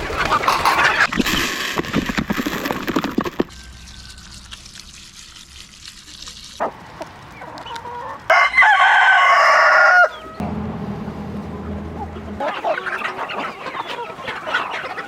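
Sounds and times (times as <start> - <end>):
cluck-like call: 0.1 - 1.1, 12.4 - 15.0
rooster crowing: 3.5 - 4.4, 8.3 - 10.4.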